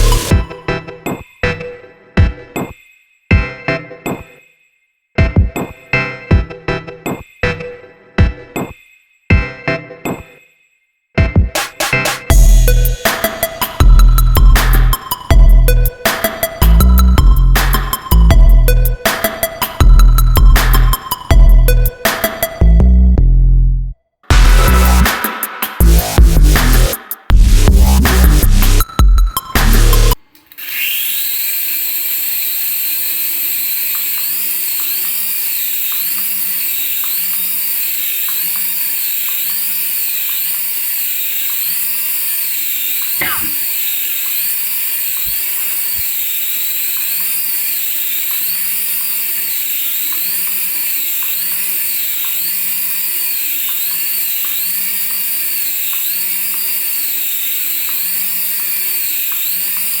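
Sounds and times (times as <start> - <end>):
small electric motor whining: 0.0 - 0.5, 12.3 - 22.6, 28.2 - 60.0.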